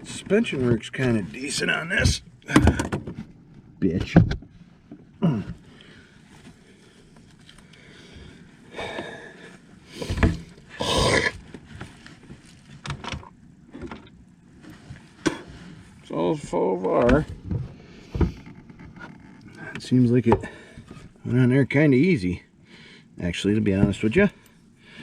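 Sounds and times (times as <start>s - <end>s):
person grunting: 5.2s - 5.6s, 10.8s - 11.4s.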